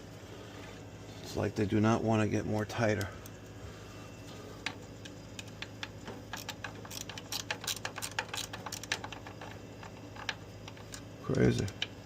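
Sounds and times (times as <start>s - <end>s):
steady low hum: 0.0s - 12.0s
allen key clicking on screws: 5.4s - 11.9s.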